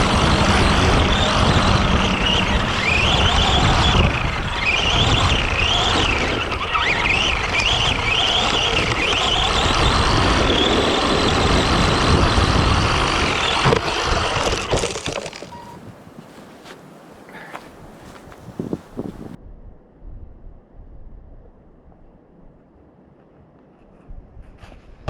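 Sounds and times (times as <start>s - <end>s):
electric motor whining: 0.0s - 19.4s
tyres on ground: 0.0s - 19.4s.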